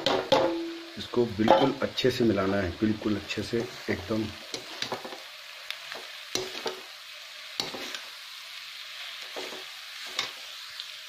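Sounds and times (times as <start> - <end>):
vegetables sizzling in hot oil: 0.0 - 11.0
metal spoon scraping a pan: 4.4 - 5.2, 5.9 - 6.9, 7.5 - 8.1, 9.2 - 10.5.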